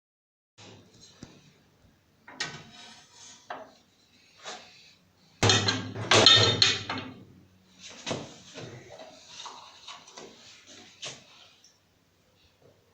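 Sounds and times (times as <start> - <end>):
objects knocking and clattering: 5.4 - 7.2.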